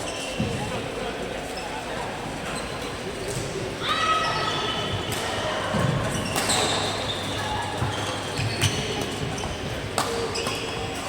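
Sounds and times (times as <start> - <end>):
sneakers squeaking on court: 4.8 - 11.0.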